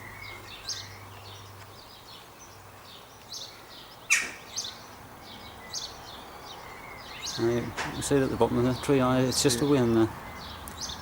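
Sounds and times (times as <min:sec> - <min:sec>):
birds chirping: 0:00.0 - 0:11.0
outdoor background noise: 0:00.0 - 0:11.0
sharp bird call: 0:04.1 - 0:04.8.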